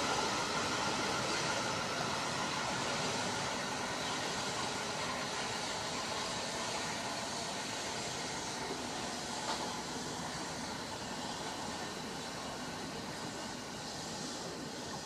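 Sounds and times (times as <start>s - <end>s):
train rumbling along track: 0.0s - 15.0s.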